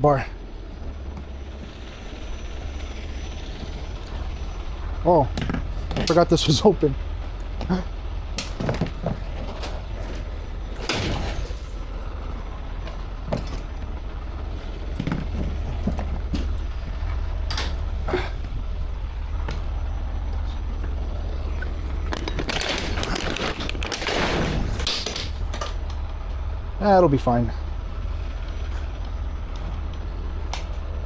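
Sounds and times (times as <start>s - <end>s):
truck engine idling: 0.0s - 31.0s
equipment knocks and clunks: 8.4s - 9.9s.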